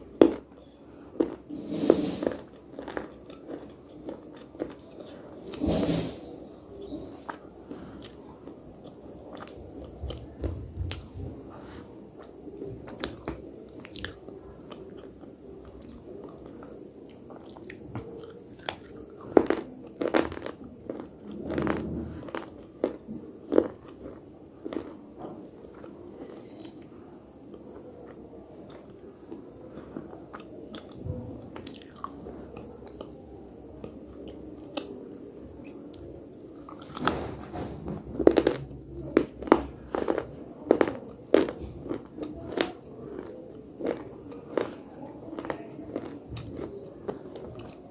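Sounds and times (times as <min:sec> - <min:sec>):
biting and chewing slate: 0:00.2 - 0:06.1, 0:12.2 - 0:26.8, 0:36.6 - 0:47.8.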